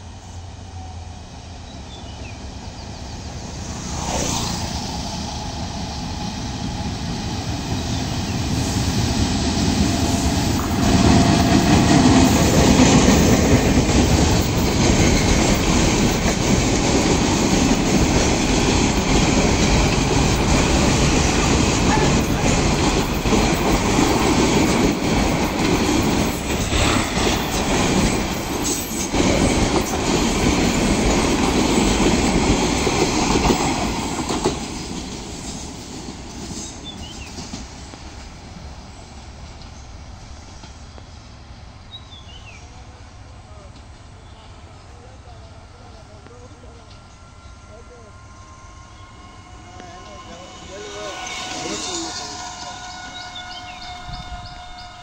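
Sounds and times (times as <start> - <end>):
passenger train passing: 0.0 - 55.0
wheels clattering on rails: 7.2 - 38.4.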